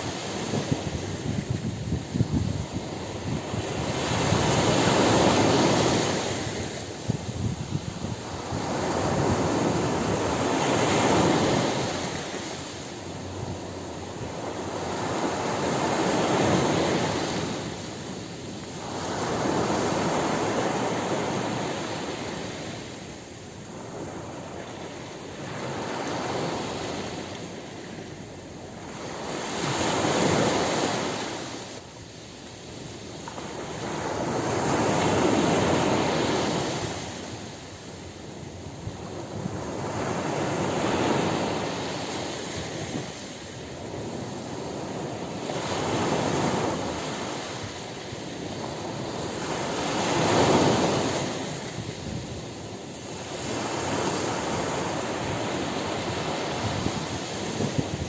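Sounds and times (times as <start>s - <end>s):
ocean surf breaking on beach: 0.0s - 58.0s.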